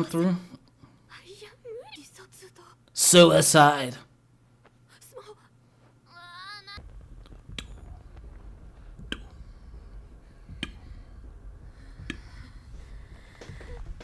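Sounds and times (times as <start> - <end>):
low rumble: 6.8 - 14.0
sharp ticks: 6.8 - 14.0.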